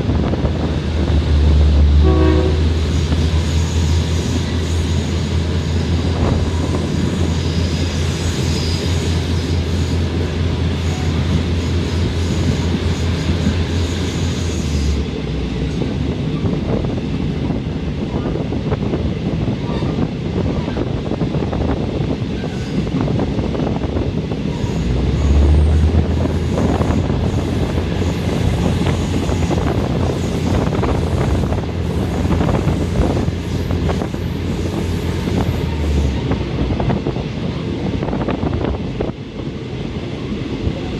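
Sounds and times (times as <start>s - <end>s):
train engine drone: 0.0s - 40.9s
train rolling noise: 0.0s - 40.9s
train horn note: 1.6s - 4.4s.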